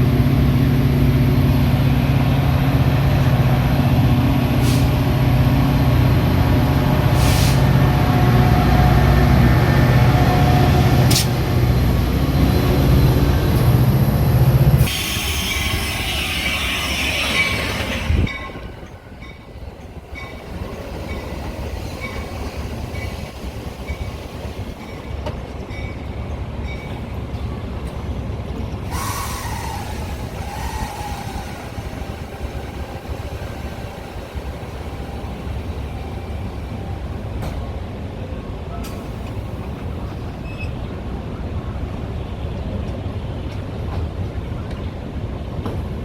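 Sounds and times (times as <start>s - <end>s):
train mechanical hum: 0.0s - 46.0s
hiss: 4.6s - 5.0s, 7.1s - 7.7s, 14.8s - 18.0s, 28.9s - 35.8s.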